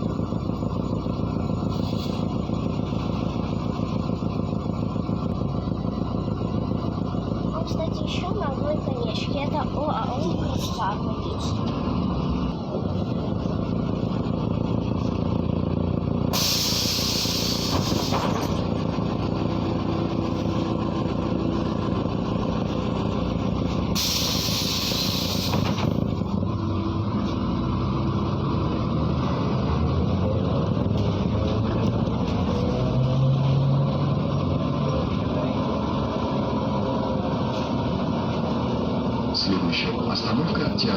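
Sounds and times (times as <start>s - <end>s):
bus diesel engine drone: 0.0s - 40.9s
compressed air hissing: 16.4s - 18.1s, 24.0s - 25.7s.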